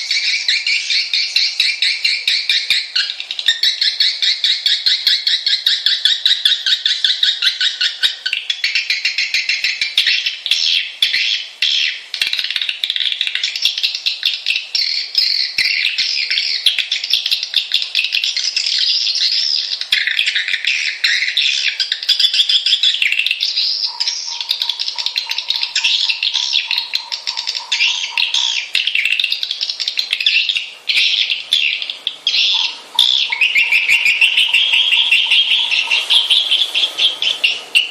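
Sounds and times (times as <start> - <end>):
swiftlets twittering and chirping: 0.0 - 37.9
steady electronic tone: 32.2 - 37.7.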